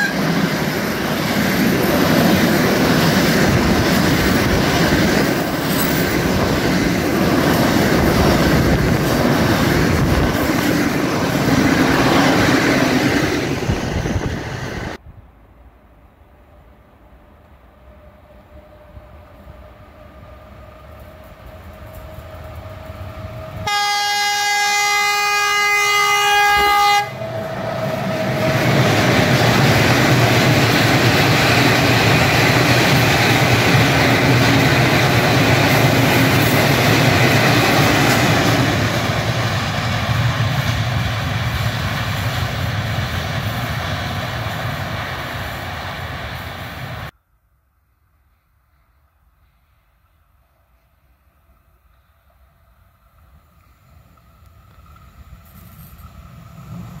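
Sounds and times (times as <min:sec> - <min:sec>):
train horn blast: 0:00.0 - 0:00.3, 0:23.2 - 0:28.5
wheel and rail noise: 0:00.0 - 0:23.7, 0:26.0 - 0:47.2, 0:48.2 - 0:57.0
train rumbling: 0:00.0 - 0:47.2, 0:48.3 - 0:57.0.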